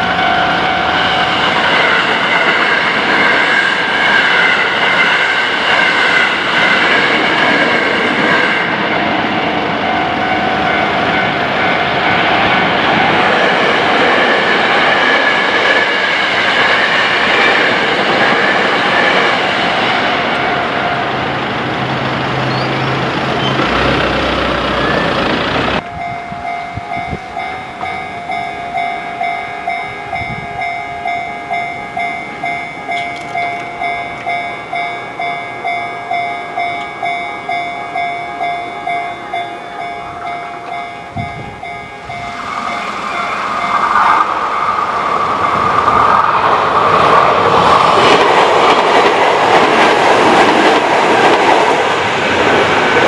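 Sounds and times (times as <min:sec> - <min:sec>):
level crossing warning bell: 0:00.0 - 0:15.4, 0:16.6 - 0:53.0
train running past on rails: 0:00.0 - 0:53.0.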